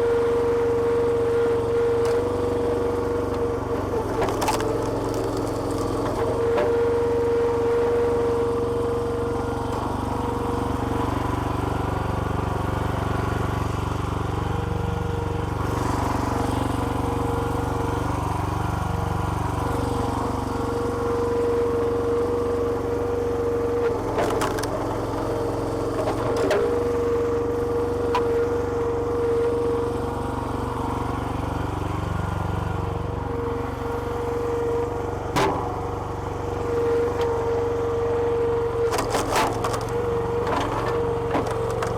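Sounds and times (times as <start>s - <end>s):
small petrol engine running: 0.0s - 41.9s
hydraulic whine: 15.5s - 41.9s
sharp cracks of splitting wood: 35.3s - 35.8s.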